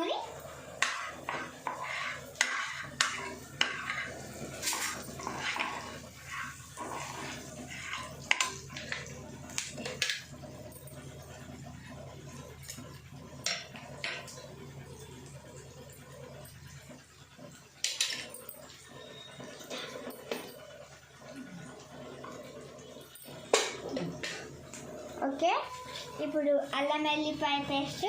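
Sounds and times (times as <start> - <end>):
metal spoon scraping cooking pan: 0.5 - 10.3.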